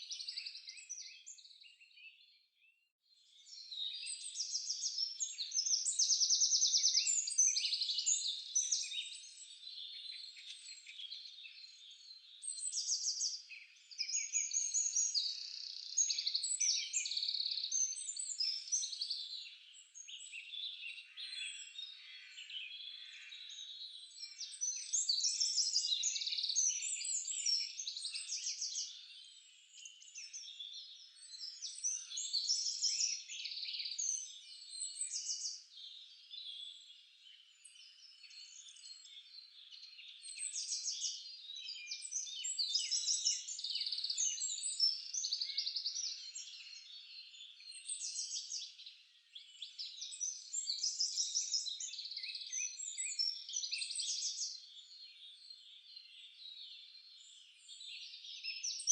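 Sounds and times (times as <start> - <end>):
songbirds singing and chirping: 0.0 - 58.9.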